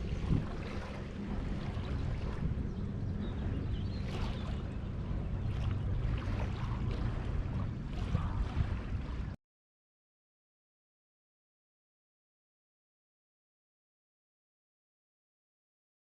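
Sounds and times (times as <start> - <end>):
faint hum: 0.0 - 9.4
rushing wind and water noise: 0.0 - 9.4
steady low rumble: 0.0 - 9.4.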